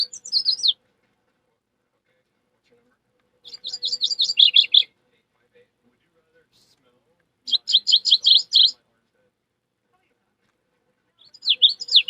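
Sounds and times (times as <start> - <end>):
bird trill: 0.0 - 0.8, 3.4 - 4.9, 7.5 - 8.8, 11.2 - 12.0
high bird chirps: 0.0 - 0.8, 3.4 - 4.9, 7.5 - 8.8, 11.2 - 12.0.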